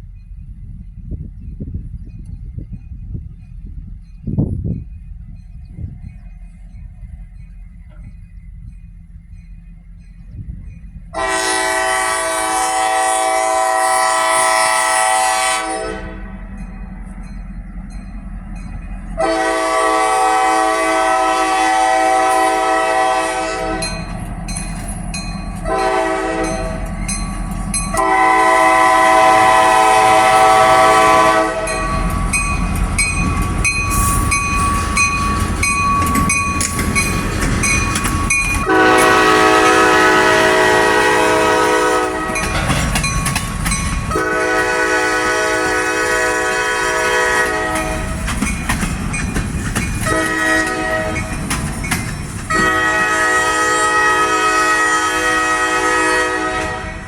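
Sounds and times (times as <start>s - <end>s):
train low rumble: 0.0s - 57.0s
locomotive air horn blasts: 11.1s - 16.3s, 19.2s - 24.0s, 25.6s - 26.8s, 27.9s - 32.1s, 38.6s - 42.5s, 44.1s - 48.2s, 50.0s - 51.4s, 52.5s - 57.0s
train wheels clacking on rails: 16.4s - 57.0s.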